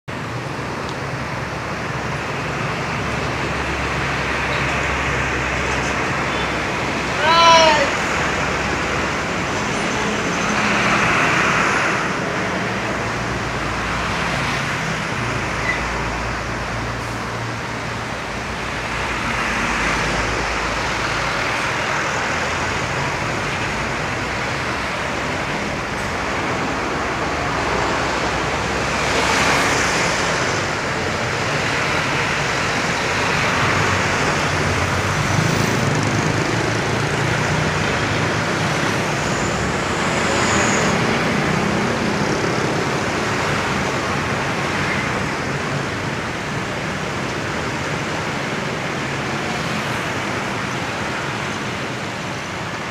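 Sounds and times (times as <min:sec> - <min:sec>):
trucks passing: 0:00.0 - 0:52.9.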